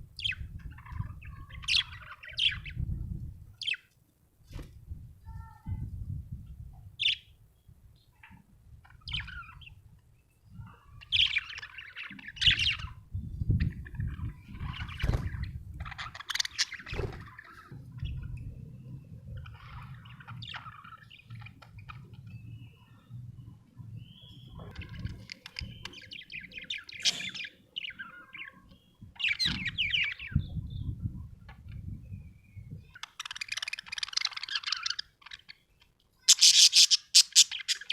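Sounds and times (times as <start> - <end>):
budgerigar chirping: 36.2 - 37.9.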